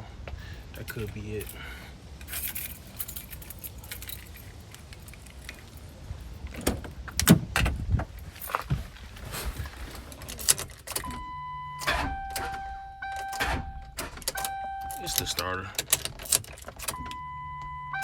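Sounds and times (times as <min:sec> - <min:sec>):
keys jangling: 0:00.9 - 0:05.9, 0:10.2 - 0:11.2, 0:11.8 - 0:18.0
ignition clicks and knocks: 0:06.5 - 0:08.1, 0:10.2 - 0:18.0
steady electronic warning tone: 0:11.1 - 0:15.4, 0:17.0 - 0:18.0.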